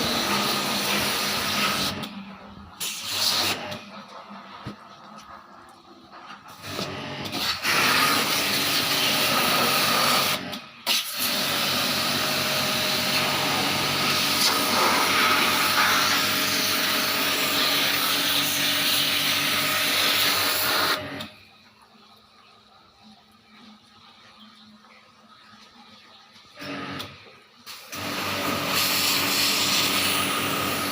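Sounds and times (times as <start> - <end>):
pressure washer spraying water: 0.0 - 2.1, 2.8 - 4.6, 6.4 - 21.2, 27.7 - 30.9.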